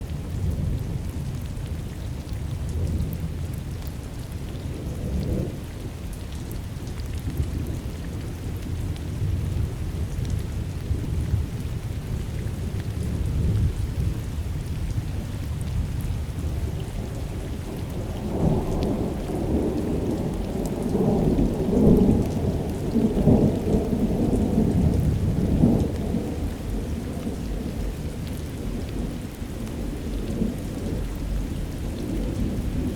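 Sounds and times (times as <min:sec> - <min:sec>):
steady rain: 0:00.0 - 0:32.9
thunder rumbling: 0:16.5 - 0:32.9.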